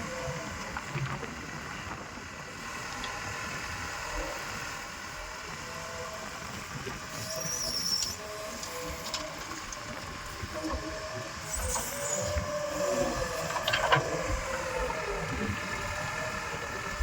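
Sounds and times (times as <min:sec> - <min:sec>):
diesel engines running: 0:00.0 - 0:17.0
high-pitched squeal: 0:11.4 - 0:13.9.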